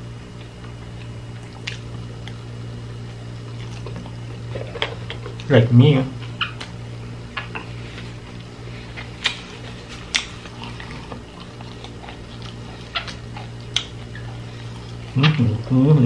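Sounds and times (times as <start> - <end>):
steady low hum: 0.0 - 16.0
wet mouth clicks and smacks: 1.4 - 2.4.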